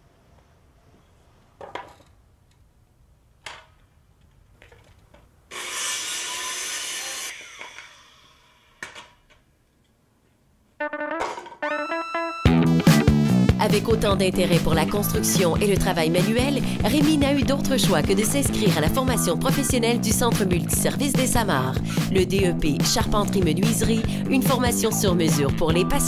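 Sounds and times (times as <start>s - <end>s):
saw cutting wood: 5.5s - 9.2s
music: 10.8s - 26.0s.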